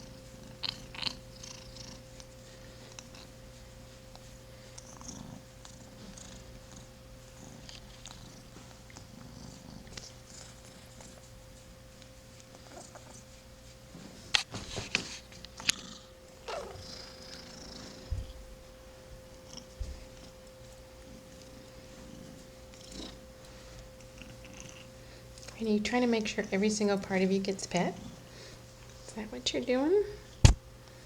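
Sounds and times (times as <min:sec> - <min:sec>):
kitten purring: 0:00.0 - 0:02.2, 0:02.9 - 0:03.4, 0:04.7 - 0:11.2, 0:12.5 - 0:13.2, 0:15.6 - 0:18.4, 0:22.0 - 0:23.2, 0:24.0 - 0:24.9.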